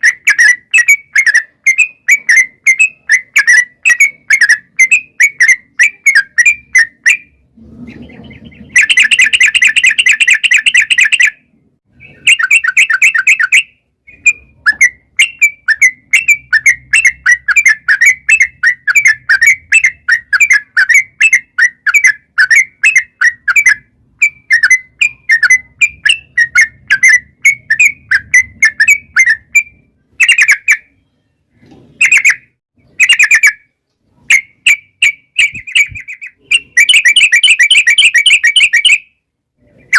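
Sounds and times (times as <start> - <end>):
bird trilling fast: 0.0 - 31.0, 34.3 - 39.0
bulbul bubbling song: 0.0 - 31.2.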